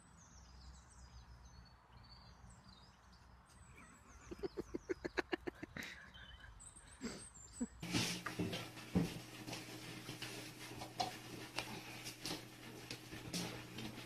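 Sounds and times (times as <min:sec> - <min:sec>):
small birds chirping: 0:00.0 - 0:07.8.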